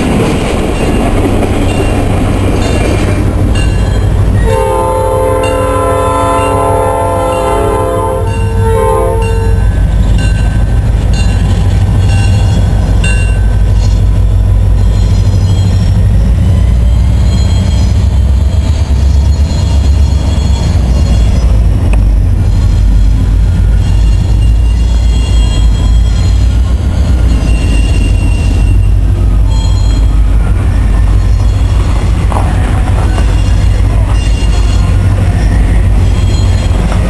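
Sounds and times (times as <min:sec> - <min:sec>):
diesel locomotives rumbling past: 0:00.0 - 0:37.0
train horn chord: 0:04.4 - 0:09.7.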